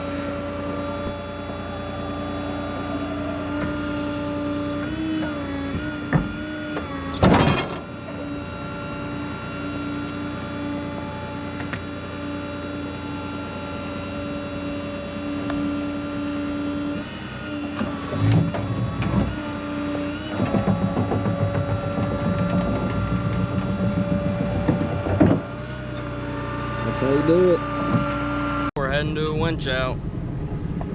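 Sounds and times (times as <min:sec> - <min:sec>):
hydraulics whining: 0:00.0 - 0:30.9
knocks: 0:03.5 - 0:07.9, 0:17.8 - 0:25.8
loud metal clank: 0:07.2 - 0:07.9.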